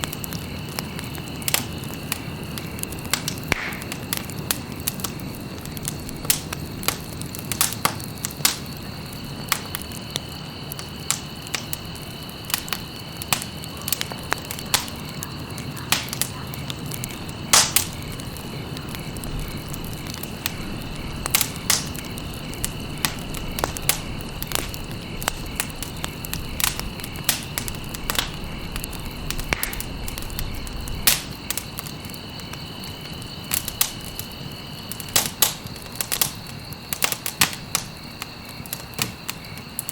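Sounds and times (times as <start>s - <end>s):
campfire crackles and pops: 0.0s - 39.9s
rush of flames: 0.0s - 39.9s.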